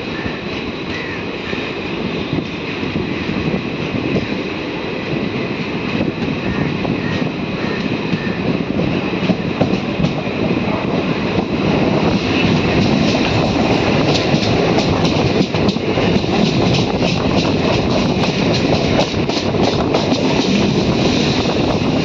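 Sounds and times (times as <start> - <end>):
oncoming train passing: 0.0 - 22.0
rumble and rattle of wheels: 5.8 - 22.0.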